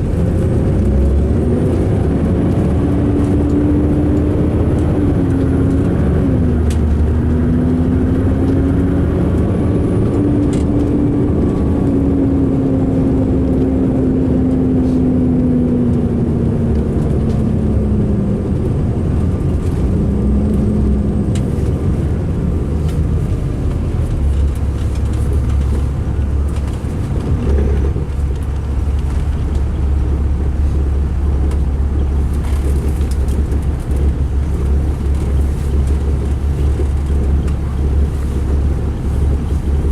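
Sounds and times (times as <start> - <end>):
diesel engine running rough: 0.0 - 39.9.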